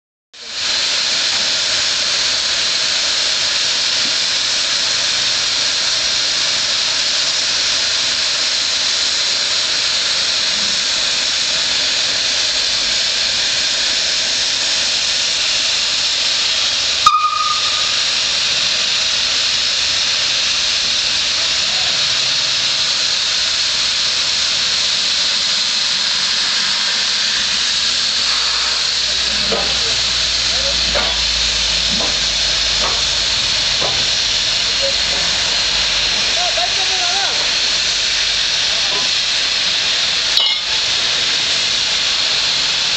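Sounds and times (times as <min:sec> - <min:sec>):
steam locomotive hissing steam: 0:00.4 - 0:42.9
brief high tone: 0:17.0 - 0:18.0.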